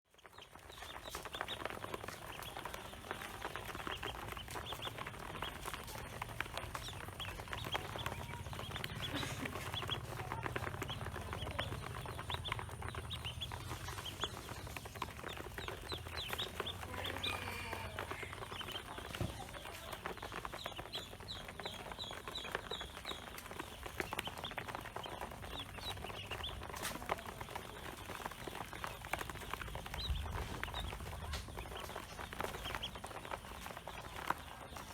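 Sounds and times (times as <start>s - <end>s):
ducklings peeping: 0.0s - 34.9s.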